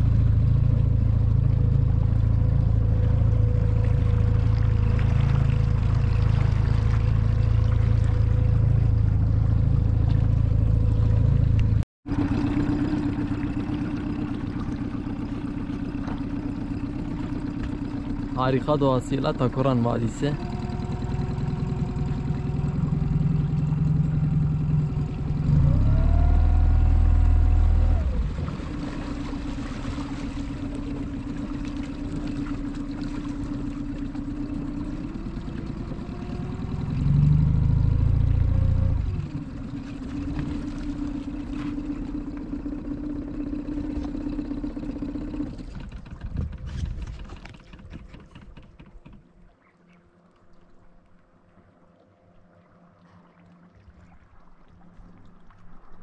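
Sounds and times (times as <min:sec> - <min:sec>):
boat motor running: 0:00.0 - 0:56.0.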